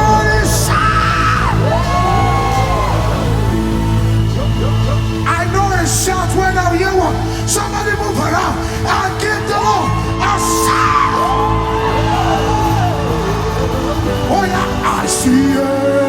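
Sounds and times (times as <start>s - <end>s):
keyboard chords: 0.0s - 16.0s
steady bass: 0.0s - 16.0s
wordless vocal ad-lib: 0.0s - 16.0s.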